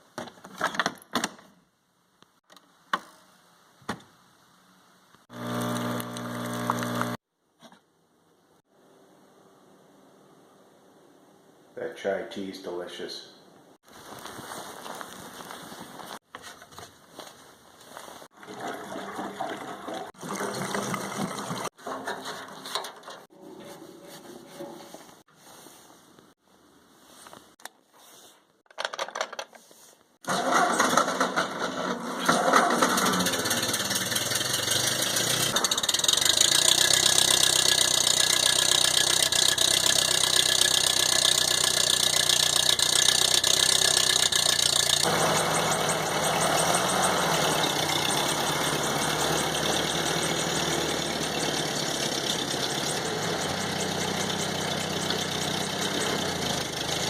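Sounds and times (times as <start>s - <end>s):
tractor engine starting and running: 5.3s - 7.2s, 18.3s - 23.9s, 30.2s - 57.0s.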